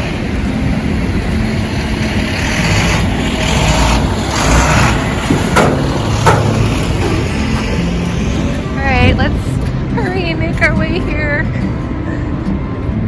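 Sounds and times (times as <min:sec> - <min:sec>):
rushing noise: 0:00.0 - 0:12.6
truck engine running: 0:00.0 - 0:13.0
sharp metal clanks: 0:04.6 - 0:08.5.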